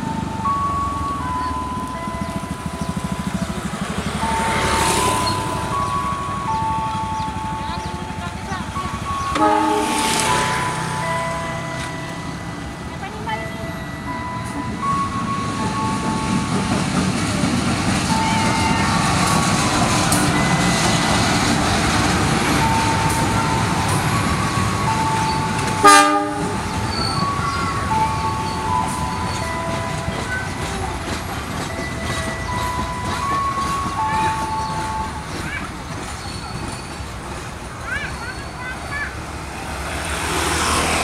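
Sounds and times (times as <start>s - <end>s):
train passing with rumble: 0.0s - 41.0s
loud train horn blast: 9.3s - 10.4s, 25.8s - 26.7s.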